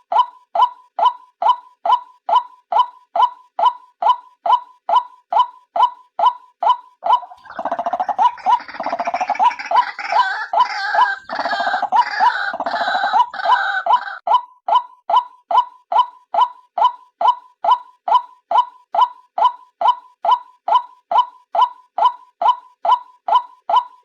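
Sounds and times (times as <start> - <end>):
waterhen calling: 7.0 - 14.2.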